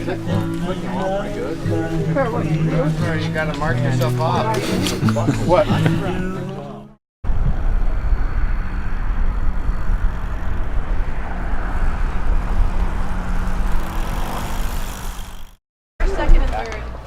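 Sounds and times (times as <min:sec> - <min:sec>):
road noise: 0:00.0 - 0:17.0
wind buffeting microphone: 0:07.3 - 0:14.2.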